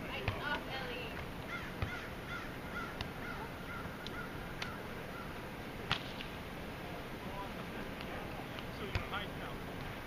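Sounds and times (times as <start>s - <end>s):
steady background noise: 0.0s - 10.0s
short bird calls: 1.4s - 5.4s.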